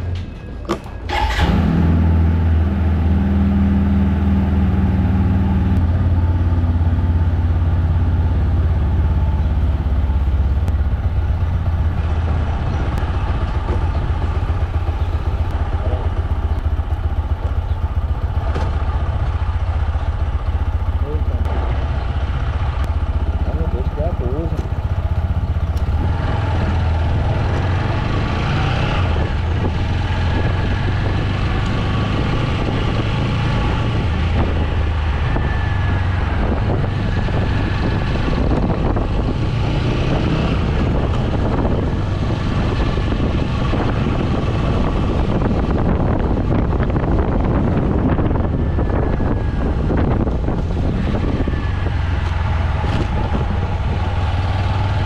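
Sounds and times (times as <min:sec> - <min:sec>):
motorcycle engine running: 0:00.7 - 0:55.0
wind noise on microphone: 0:24.4 - 0:55.0.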